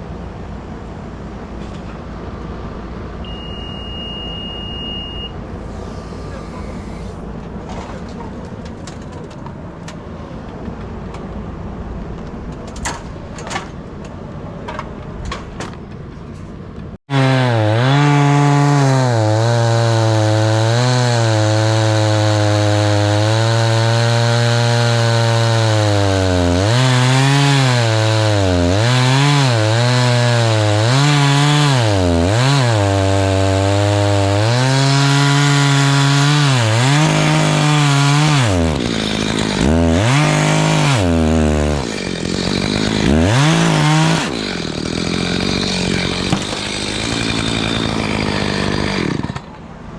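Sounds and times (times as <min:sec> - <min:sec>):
chainsaw cutting wood: 0:17.1 - 0:49.6.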